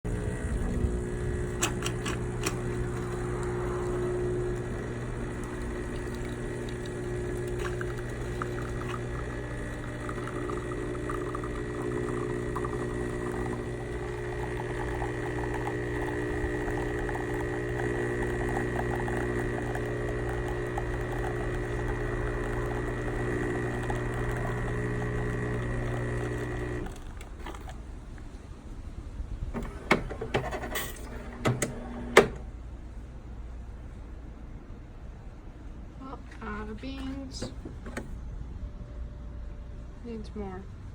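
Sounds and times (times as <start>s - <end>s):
espresso machine humming: 0.0s - 27.9s, 29.6s - 32.5s.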